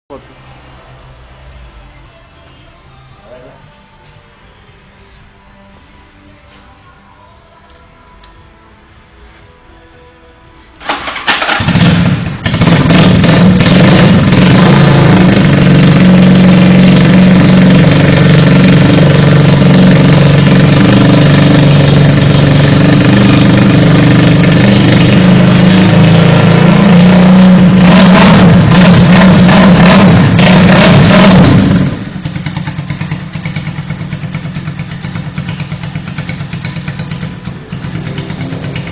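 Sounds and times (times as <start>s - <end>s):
motorcycle engine starting and running: 10.8s - 38.9s.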